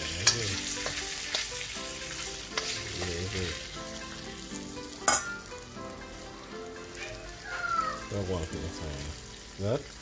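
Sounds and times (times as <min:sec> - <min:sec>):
metal spoon stirring in wok: 0:00.0 - 0:03.2
fish sizzling in a wok: 0:00.0 - 0:10.0.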